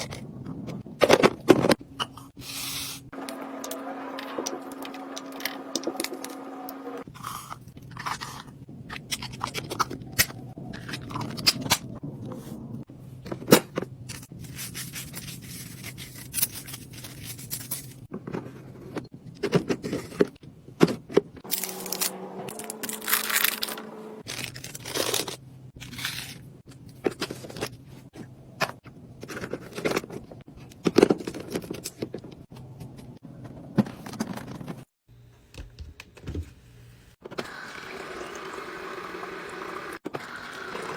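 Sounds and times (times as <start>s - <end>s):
plastic packaging crinkling: 21.5s - 26.4s.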